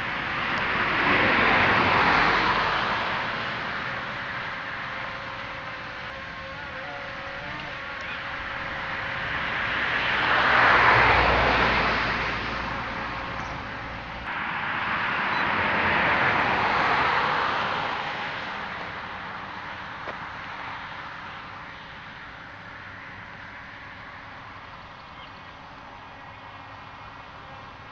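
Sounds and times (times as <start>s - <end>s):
cars passing by: 0.0s - 27.9s.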